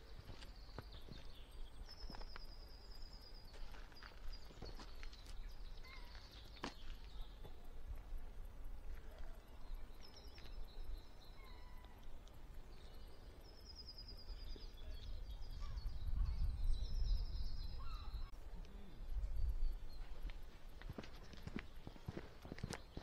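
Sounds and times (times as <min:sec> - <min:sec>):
birds trilling and whistling: 0:09.6 - 0:12.1, 0:13.1 - 0:18.4.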